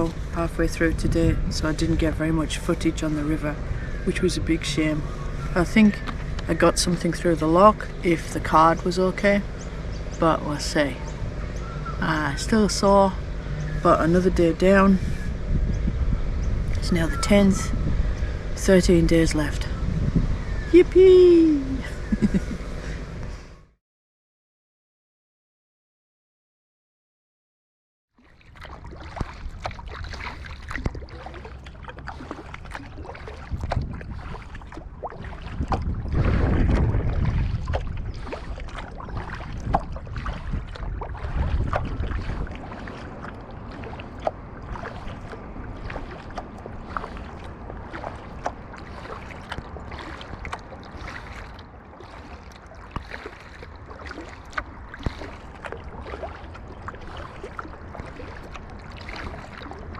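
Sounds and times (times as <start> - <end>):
paddle splashing in water: 0.0 - 9.0, 28.2 - 59.9
wind buffeting microphone: 0.0 - 23.4, 28.5 - 59.9
paddle knocks: 32.4 - 59.6.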